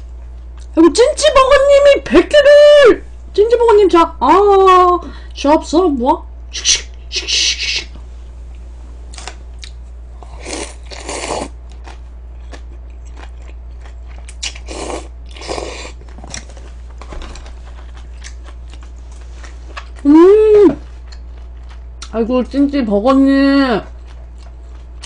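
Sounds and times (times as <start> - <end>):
steady low hum: 0.0 - 25.0
crunching and chewing crispy food: 9.1 - 20.1, 20.8 - 22.6, 23.8 - 25.0.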